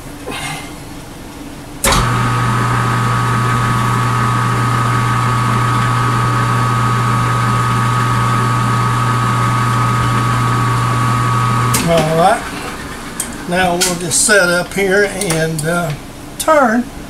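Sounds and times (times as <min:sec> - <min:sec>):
lathe switch click: 0:01.8 - 0:02.3
lathe motor humming and whining: 0:01.8 - 0:13.9.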